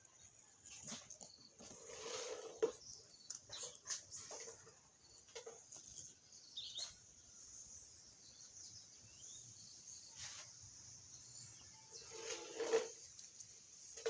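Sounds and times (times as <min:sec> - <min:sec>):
faint high chirp: 0:05.1 - 0:07.0.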